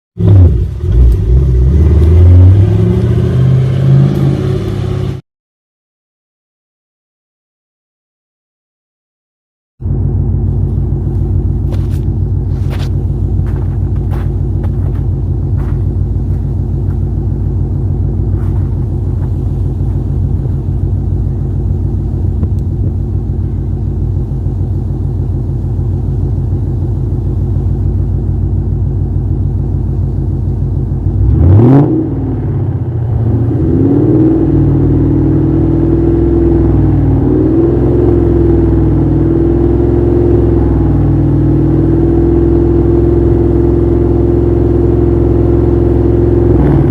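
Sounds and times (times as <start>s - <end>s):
car engine idling: 0.2s - 5.2s, 9.8s - 46.9s
engine revving sharply: 0.2s - 5.2s, 31.2s - 43.4s.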